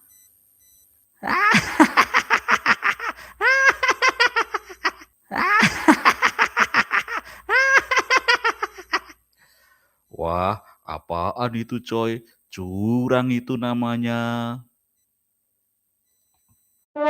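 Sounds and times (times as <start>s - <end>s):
cartoon laughter: 1.2s - 9.2s.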